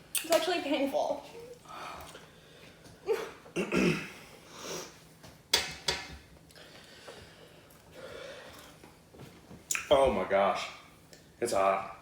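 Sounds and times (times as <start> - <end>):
person sniffing: 4.5 - 5.0
heavy breathing: 6.6 - 8.8.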